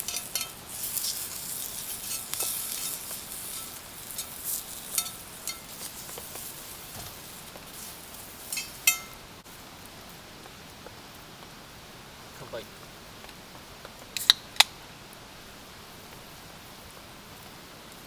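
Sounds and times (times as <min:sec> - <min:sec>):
metal cookware clinking: 0:00.0 - 0:09.3
faint frying sizzle: 0:00.0 - 0:18.0.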